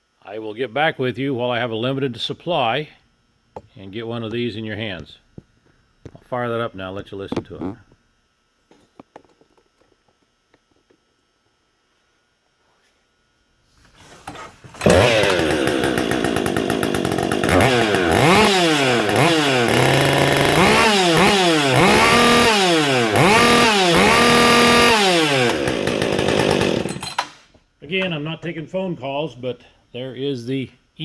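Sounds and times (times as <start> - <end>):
chainsaw revving: 14.8 - 27.2.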